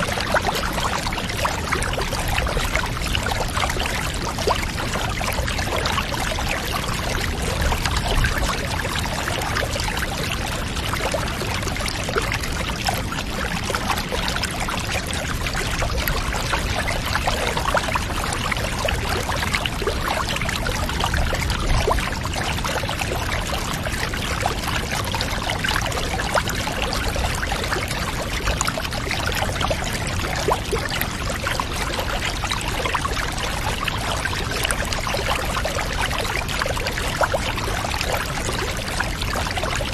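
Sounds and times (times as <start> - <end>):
water pouring and trickling: 0.0 - 39.9.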